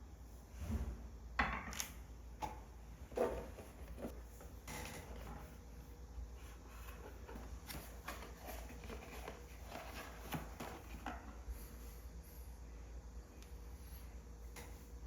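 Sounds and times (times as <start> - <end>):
rustling of objects: 3.0 - 12.0.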